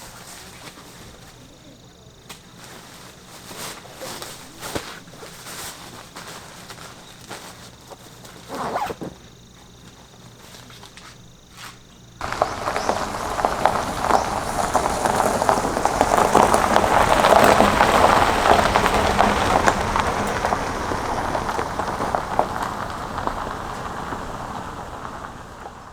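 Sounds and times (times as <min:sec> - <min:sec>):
rain falling: 0:12.2 - 0:25.9.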